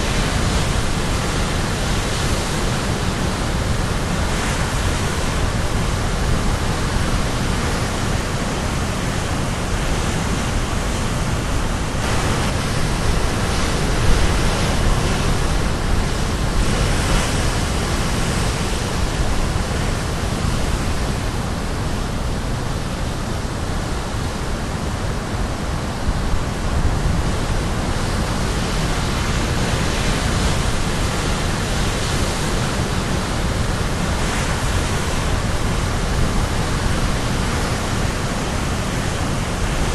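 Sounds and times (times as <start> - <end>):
waves crashing on shore: 0.0 - 39.9.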